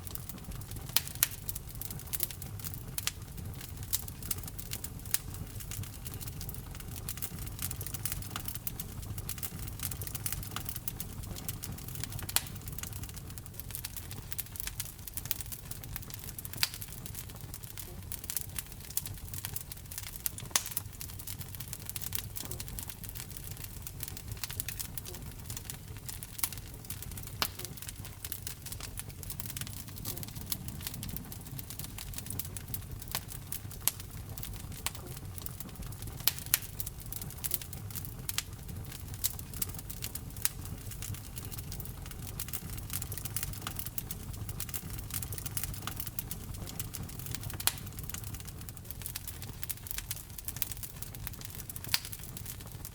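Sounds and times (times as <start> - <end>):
low rumble of flames: 0.0 - 52.9
wood fire crackling and popping: 0.0 - 52.9.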